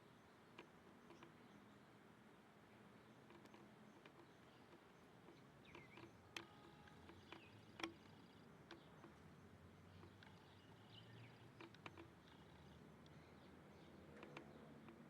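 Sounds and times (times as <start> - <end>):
faint bird chirps: 3.9 - 14.7
sharp clicks: 5.3 - 9.2, 11.2 - 13.2.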